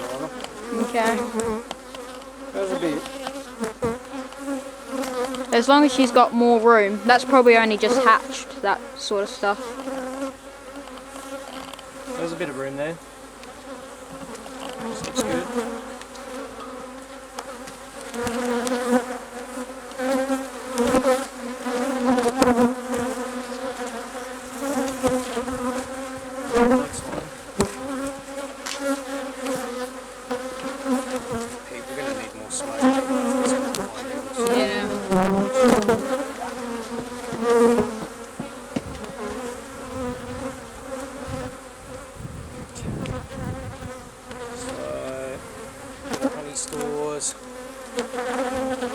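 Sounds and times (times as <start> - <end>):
bees buzzing: 0.0 - 48.9
knocks on hive: 24.9 - 29.6, 33.3 - 39.4.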